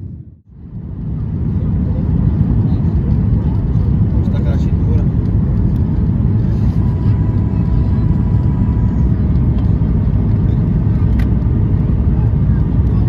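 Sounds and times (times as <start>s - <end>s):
jet engine cabin rumble: 0.0s - 13.0s
faint thin whine: 6.4s - 11.2s.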